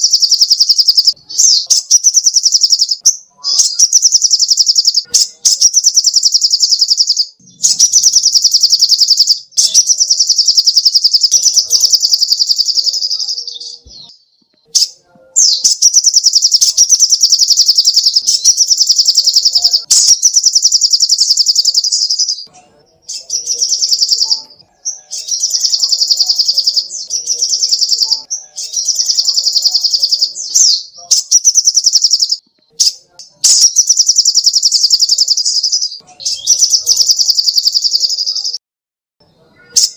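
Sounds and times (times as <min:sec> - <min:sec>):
bird singing fast high trills: 0:00.0 - 0:13.8, 0:14.8 - 0:32.4.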